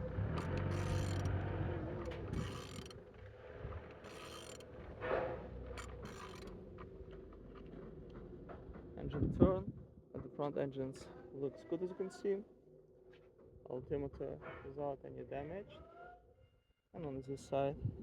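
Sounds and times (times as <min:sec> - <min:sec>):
engine turned over by hand: 0:00.3 - 0:02.9.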